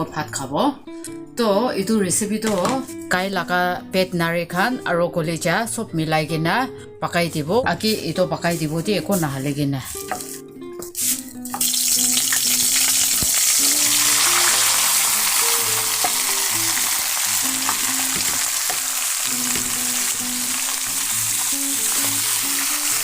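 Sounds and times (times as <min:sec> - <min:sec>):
soft background music: 0:00.0 - 0:23.0
meat sizzling in hot oil: 0:10.0 - 0:23.0.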